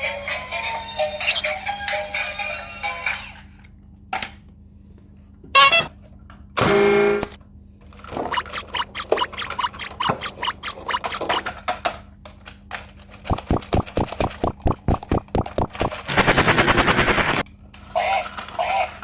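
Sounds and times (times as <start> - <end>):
sharp clicks: 13.3 - 17.4.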